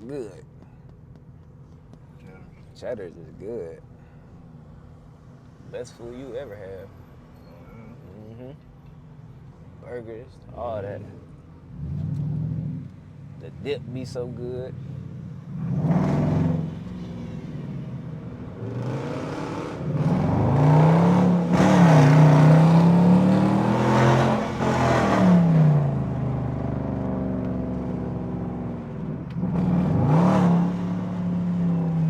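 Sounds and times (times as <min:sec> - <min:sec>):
car engine revving: 0:11.0 - 0:32.0.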